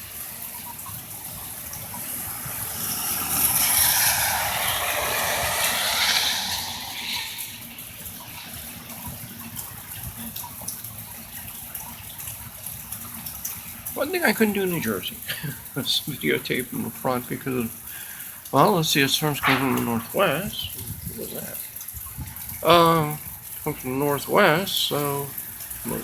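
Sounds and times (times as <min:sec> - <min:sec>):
car passing on wet street: 0:00.0 - 0:26.0
heavy rain: 0:00.0 - 0:26.0
strong wind: 0:02.2 - 0:07.8, 0:22.0 - 0:22.6.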